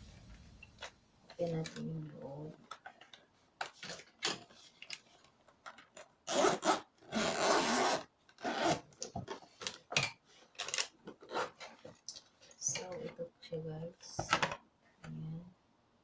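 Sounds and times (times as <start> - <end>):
package being opened by hand: 8.3 - 12.3.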